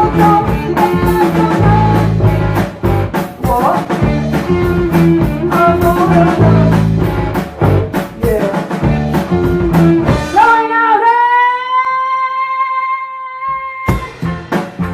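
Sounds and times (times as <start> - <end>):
steady drum beat: 0.0 - 10.7, 13.9 - 14.9
electric guitar lead line: 0.0 - 12.2, 13.5 - 14.9
rock band playing: 0.0 - 12.2, 13.5 - 14.9.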